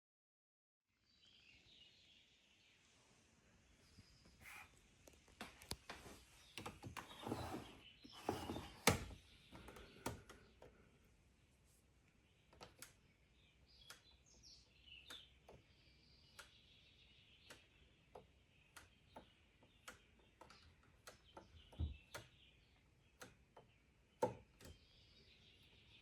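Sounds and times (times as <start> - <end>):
faint bird-like chirping: 1.0 - 5.1, 6.0 - 26.0
faint regular ticking: 12.5 - 24.8.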